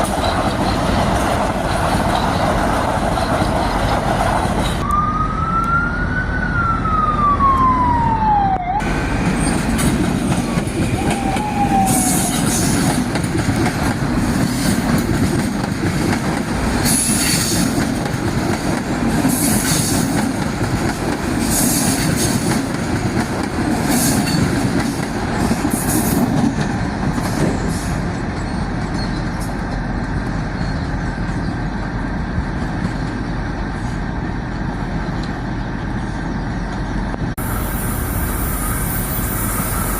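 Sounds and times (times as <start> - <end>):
train wheels rumbling on rail: 0.0 - 4.8, 8.8 - 39.9.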